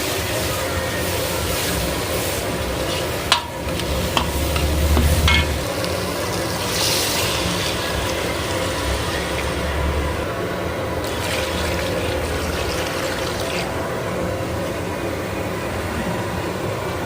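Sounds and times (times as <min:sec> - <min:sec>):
gravy sizzling in a pan: 0:00.0 - 0:13.8
utensil clinking against pan: 0:03.3 - 0:05.6.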